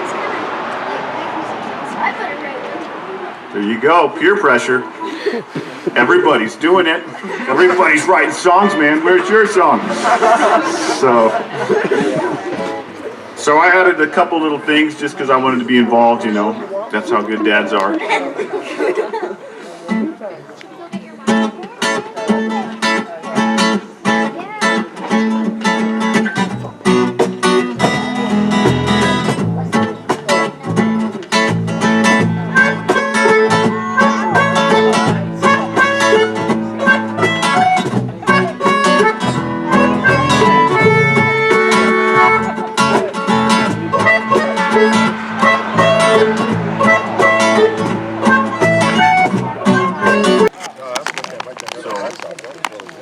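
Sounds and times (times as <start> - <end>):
guitar strumming: 0.0 - 16.2, 20.8 - 51.7
acoustic band music: 0.0 - 53.0
deeper bass notes: 30.6 - 50.5.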